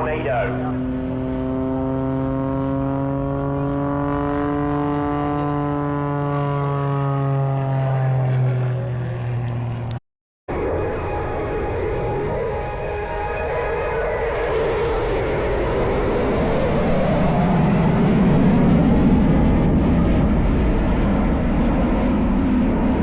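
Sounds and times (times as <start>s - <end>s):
rough noisy engine: 0.0s - 10.0s
propeller aircraft engine droning: 0.0s - 23.0s.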